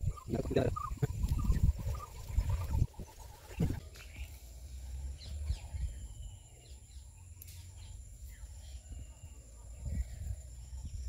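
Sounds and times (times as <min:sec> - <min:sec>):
handling and wind noise: 0:00.0 - 0:04.2
faint bird chirps: 0:00.0 - 0:11.0.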